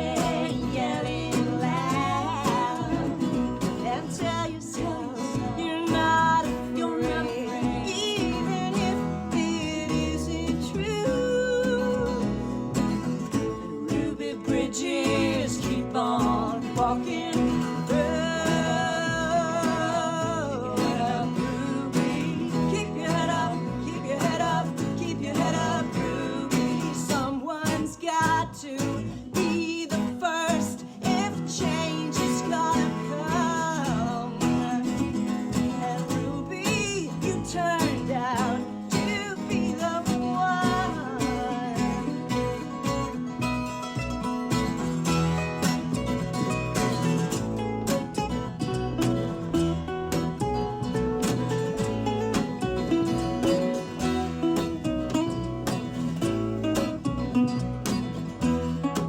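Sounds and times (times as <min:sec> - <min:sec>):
strummed acoustic guitar: 0:00.0 - 0:59.0
instrumental melody line: 0:31.2 - 0:59.0.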